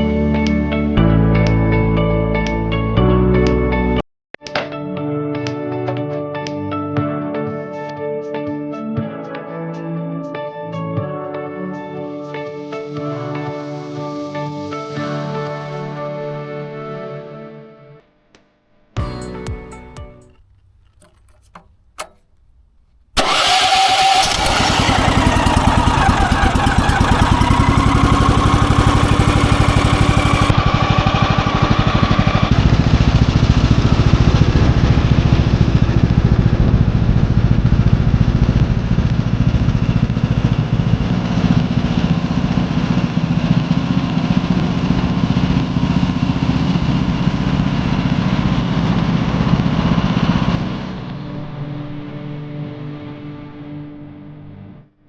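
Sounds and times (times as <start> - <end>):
sawmill gasoline engine running: 23.2 - 51.2.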